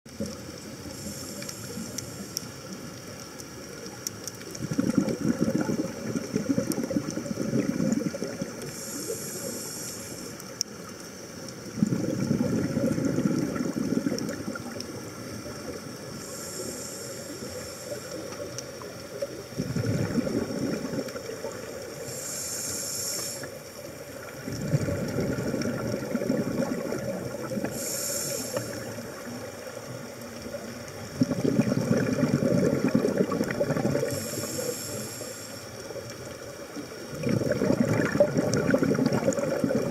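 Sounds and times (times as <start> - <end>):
regulator hissing inhalations: 0.9 - 2.6, 8.6 - 10.6, 16.1 - 18.8, 21.8 - 23.8, 27.6 - 29.8, 34.0 - 35.9
exhaust bubbling underwater: 3.8 - 9.0, 11.6 - 16.2, 18.4 - 22.2, 23.4 - 34.9, 35.8 - 39.9.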